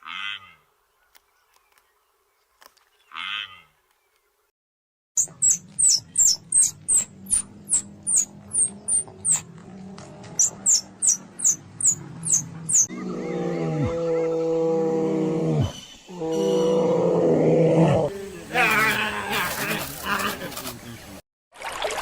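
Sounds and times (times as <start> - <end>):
high-pitched animal chirps: 5.2 - 9.4, 10.4 - 13.2
drawn-out animal call: 18.1 - 21.2.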